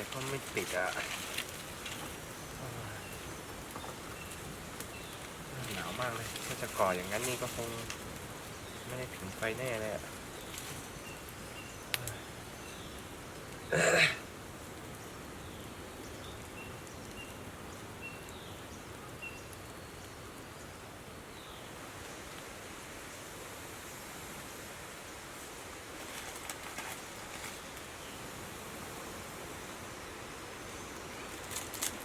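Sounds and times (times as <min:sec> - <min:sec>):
light rustling: 0:00.0 - 0:08.3, 0:25.4 - 0:27.9, 0:31.0 - 0:32.0.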